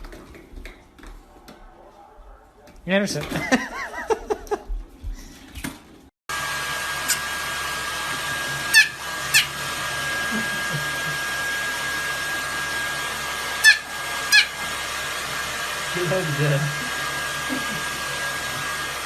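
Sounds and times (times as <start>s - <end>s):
blow dryer running: 6.3s - 19.0s.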